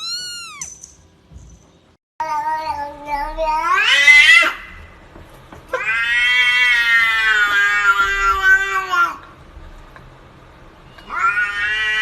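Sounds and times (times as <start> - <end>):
cat meowing: 0.0 - 0.7, 11.0 - 12.0.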